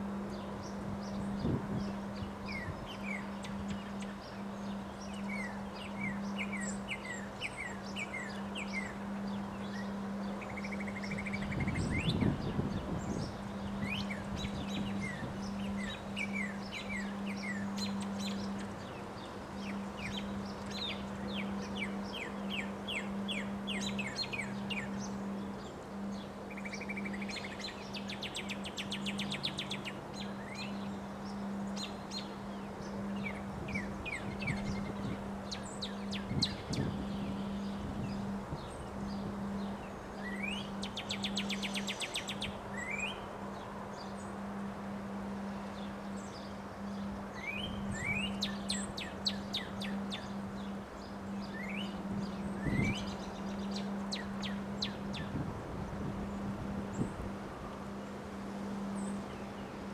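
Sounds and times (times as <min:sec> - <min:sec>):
bird trills: 0:45.2 - 0:55.4.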